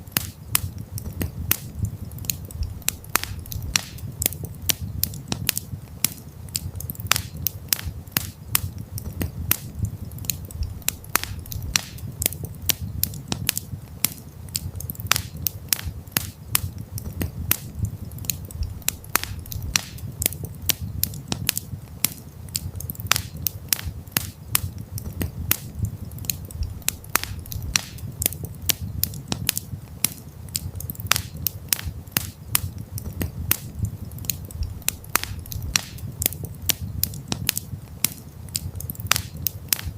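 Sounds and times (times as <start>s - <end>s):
campfire crackling and popping: 0.0s - 39.9s
low steady rumble: 16.6s - 21.9s, 24.5s - 29.9s, 32.5s - 37.9s.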